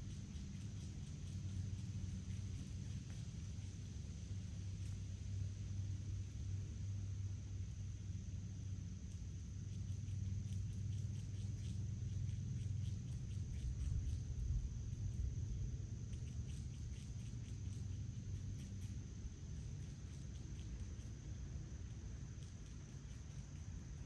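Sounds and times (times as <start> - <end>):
faint ticks or chirps: 0.0 - 24.0
insects trilling: 0.0 - 24.0.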